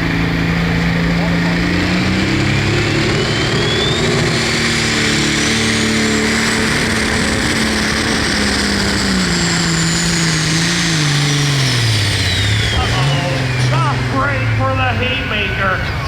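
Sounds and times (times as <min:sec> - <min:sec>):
diesel engine running under load: 0:00.0 - 0:16.0
high turbo whistle: 0:03.1 - 0:07.0, 0:09.2 - 0:16.0.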